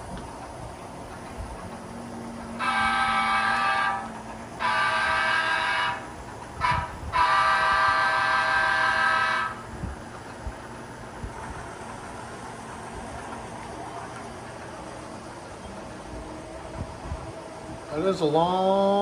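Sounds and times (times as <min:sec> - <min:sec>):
locomotive horn blasts: 0:02.5 - 0:09.7.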